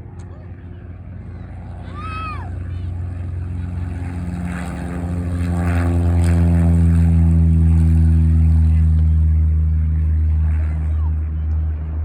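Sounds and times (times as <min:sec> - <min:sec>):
propeller plane engine at full power: 0:00.0 - 0:12.0.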